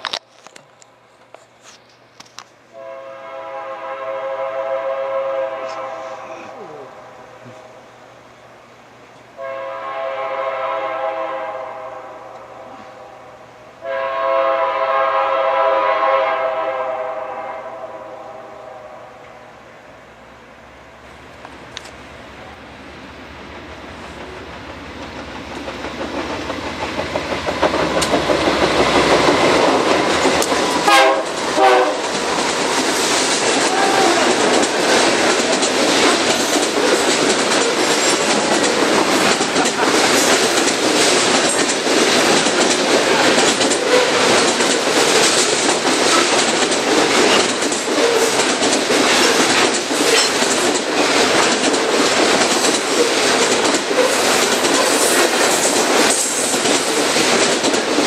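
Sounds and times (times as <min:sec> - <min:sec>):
locomotive horn blasts: 0:02.7 - 0:07.8, 0:09.4 - 0:19.4, 0:30.8 - 0:32.1
train wheels clattering: 0:23.4 - 0:58.0.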